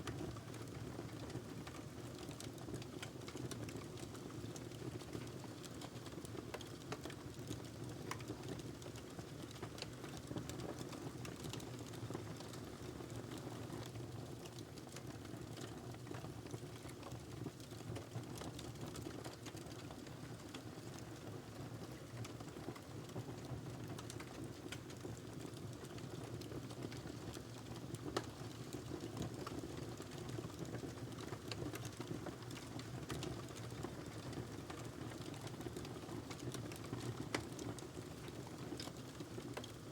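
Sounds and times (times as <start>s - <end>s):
wood fire crackling: 0.1s - 13.4s, 23.8s - 39.9s.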